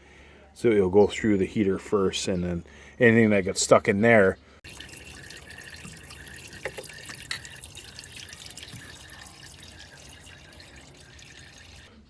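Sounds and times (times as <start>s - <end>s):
water trickling and dripping: 4.6s - 11.9s.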